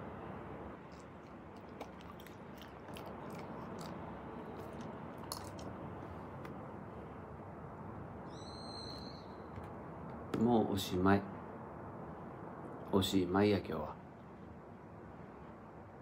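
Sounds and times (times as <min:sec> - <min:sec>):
low background hum: 0:00.0 - 0:16.0
person chewing bread: 0:00.8 - 0:05.8
wet mouth clicks: 0:00.9 - 0:05.8.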